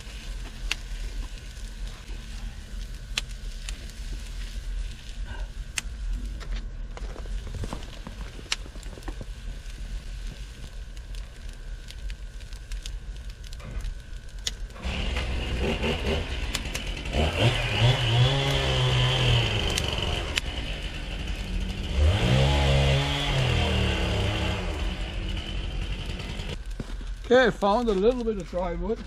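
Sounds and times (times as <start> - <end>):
small petrol engine revving: 14.8 - 26.6.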